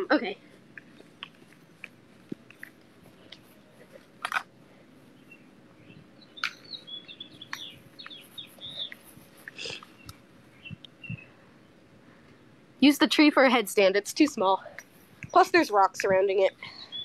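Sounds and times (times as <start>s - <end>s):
small birds chirping: 5.0s - 12.6s, 14.2s - 17.0s.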